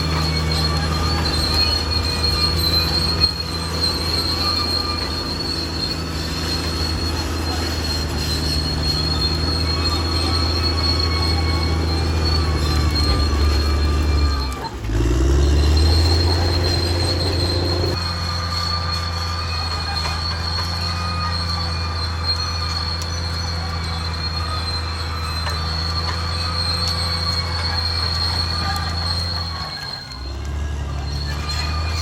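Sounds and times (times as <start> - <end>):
bulldozer diesel engine: 0.0 - 32.0
steel tracks squealing: 0.0 - 32.0.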